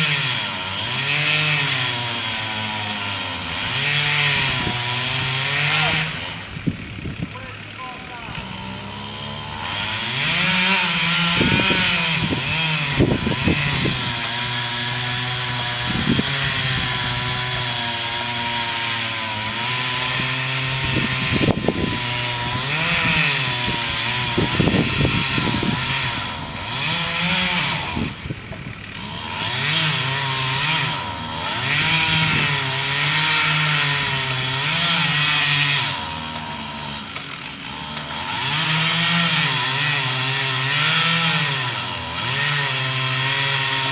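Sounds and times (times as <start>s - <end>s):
chainsaw cutting a tree: 0.0s - 43.9s
sharp wood cracks: 32.9s - 39.2s.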